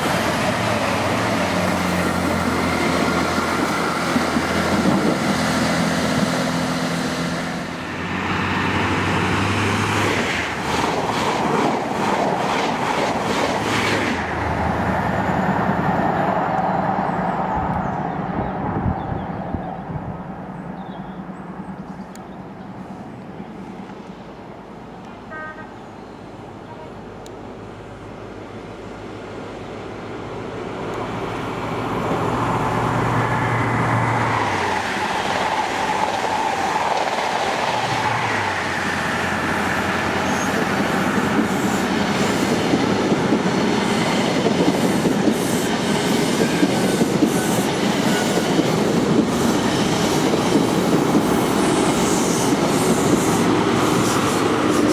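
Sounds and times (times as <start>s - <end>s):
diesel train engines: 0.0s - 54.9s
train wheels clattering on rail: 8.3s - 14.2s, 34.3s - 54.9s.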